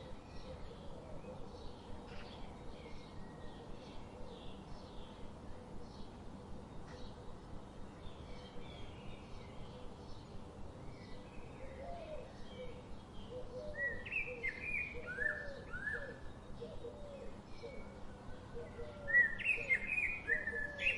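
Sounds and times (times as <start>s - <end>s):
songbirds chirping and singing: 0.0s - 20.9s
low repeated bird call: 11.0s - 20.9s.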